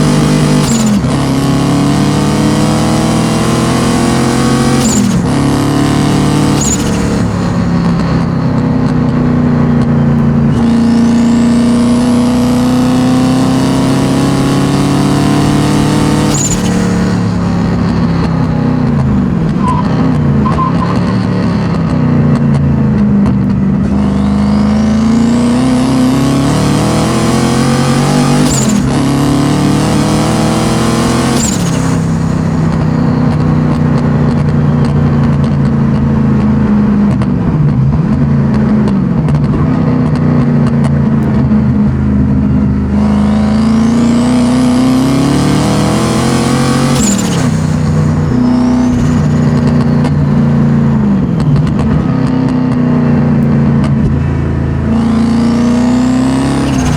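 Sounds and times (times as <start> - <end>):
car engine revving hard: 0.0 - 56.9
turbo whistle: 10.5 - 12.0, 16.2 - 17.3, 19.6 - 21.5, 46.9 - 50.0.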